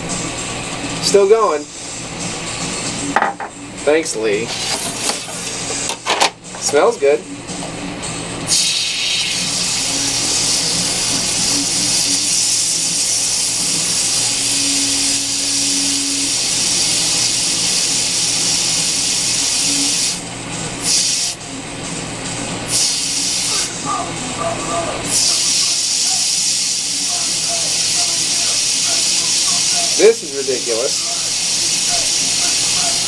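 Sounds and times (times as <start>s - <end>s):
beer foam fizzing: 8.5s - 20.2s, 22.6s - 33.0s.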